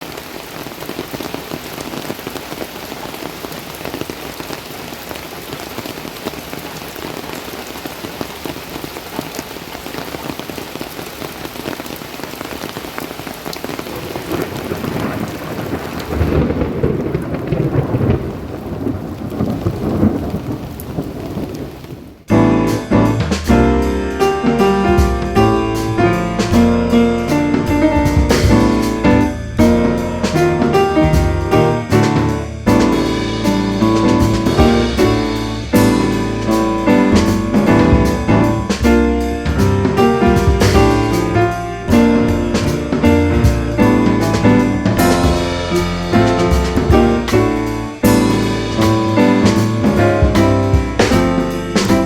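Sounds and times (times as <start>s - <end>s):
heavy rain falling: 0.0s - 52.0s
low rumble of thunder: 13.8s - 52.0s
music with piano and drums: 22.3s - 52.0s.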